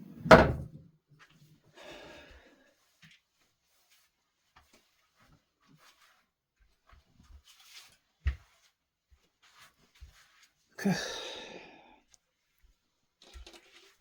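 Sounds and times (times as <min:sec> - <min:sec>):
man sighing loudly: 0:10.8 - 0:11.9.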